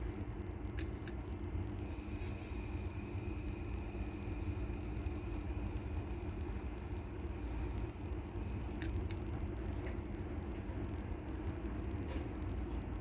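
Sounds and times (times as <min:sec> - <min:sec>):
sharp metallic clicks: 0:08.7 - 0:09.4.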